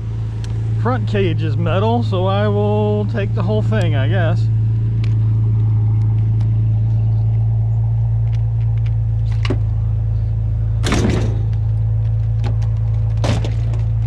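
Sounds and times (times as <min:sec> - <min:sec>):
truck engine idling: 0:00.0 - 0:14.0
metal clatter: 0:10.8 - 0:14.0.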